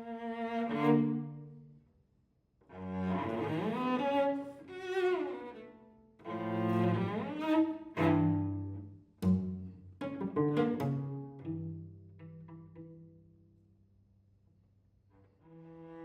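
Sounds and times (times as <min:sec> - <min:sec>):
cello playing bowed phrases: 0:00.0 - 0:01.8, 0:02.7 - 0:13.6, 0:15.1 - 0:16.0.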